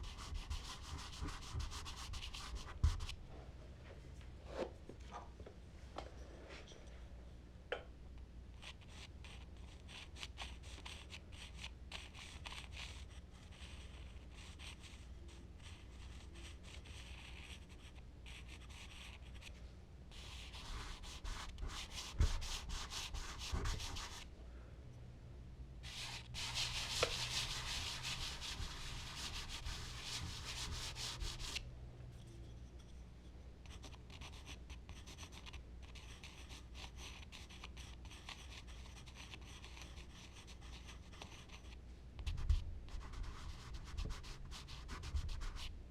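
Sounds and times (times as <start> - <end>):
charcoal scratching on paper: 0.0 - 3.2, 8.6 - 19.5, 20.1 - 24.2, 25.8 - 31.6, 33.6 - 45.7
continuous rubbing on paper: 0.0 - 3.2, 8.6 - 24.3, 25.8 - 31.6, 33.7 - 45.8.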